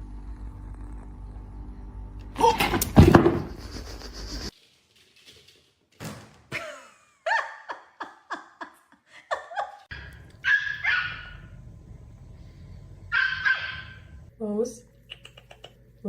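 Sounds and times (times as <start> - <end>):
dog barking: 9.9 - 11.5, 13.1 - 14.1.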